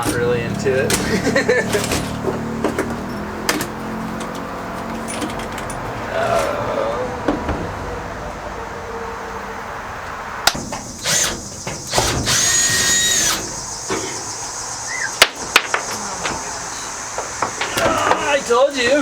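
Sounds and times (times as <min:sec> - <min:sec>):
sharp knocks and clicks: 0:00.9 - 0:05.9, 0:15.2 - 0:16.4
power drill whining: 0:10.9 - 0:15.0.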